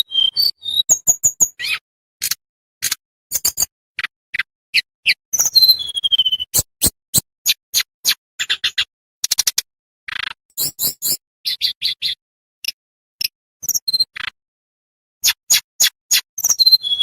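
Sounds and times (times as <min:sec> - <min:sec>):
descending bird whistle: 0:00.0 - 0:01.8, 0:04.4 - 0:08.9, 0:15.2 - 0:17.0
songbird chirping: 0:04.4 - 0:06.8.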